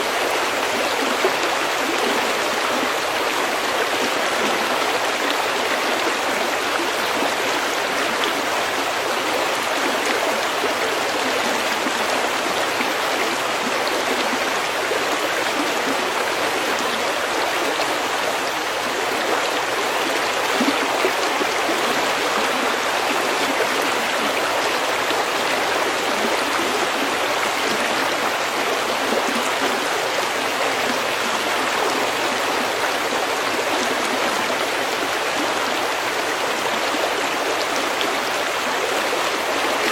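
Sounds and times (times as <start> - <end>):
stream flowing over pebbles: 0.0 - 39.9.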